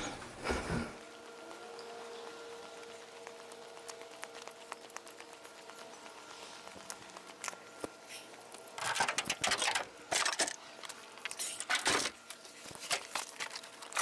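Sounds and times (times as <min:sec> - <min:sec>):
tools rattling and clattering: 0:08.8 - 0:10.6.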